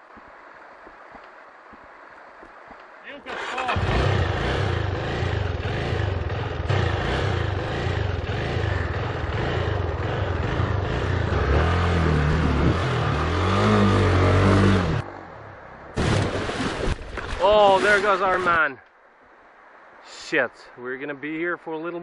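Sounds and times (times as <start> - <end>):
dirt bike engine revving: 3.3 - 15.2.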